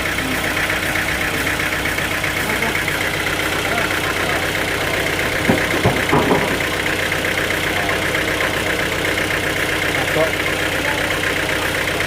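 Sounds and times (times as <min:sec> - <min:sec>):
sawmill engine running: 0:00.0 - 0:12.0
knocks: 0:03.5 - 0:09.0.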